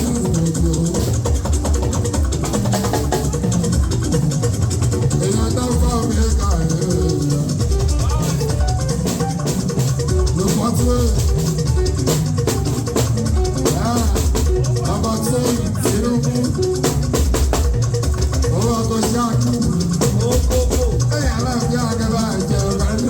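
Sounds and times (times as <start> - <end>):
person singing: 0.0 - 1.8, 5.1 - 8.6, 10.2 - 12.0, 13.5 - 17.1, 18.4 - 23.0
drums: 0.0 - 23.0
shaken rattle: 0.0 - 23.0.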